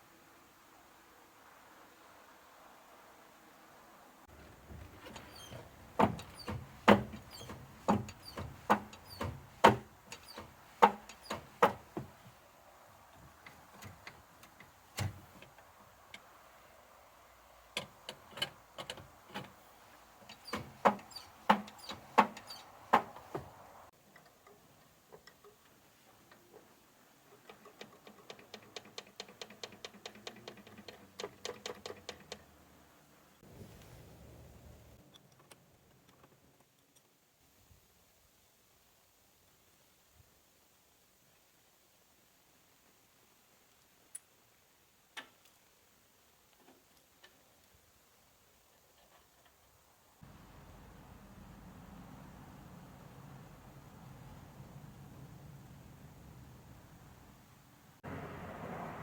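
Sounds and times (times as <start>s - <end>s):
sharp metallic clicks and knocks: 4.9s - 12.3s, 17.7s - 19.6s, 20.2s - 25.7s, 27.3s - 32.5s.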